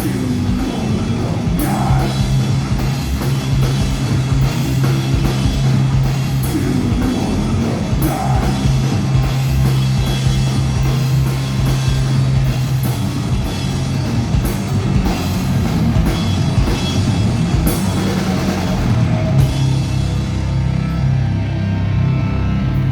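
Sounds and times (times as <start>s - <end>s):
heavy rock band playing: 0.0s - 22.9s.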